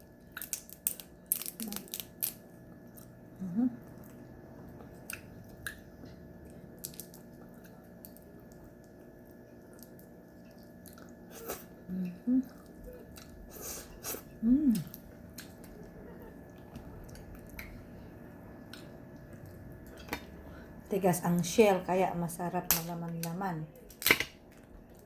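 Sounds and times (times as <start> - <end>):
person humming: 3.4 - 3.8, 11.9 - 12.6, 14.4 - 15.0.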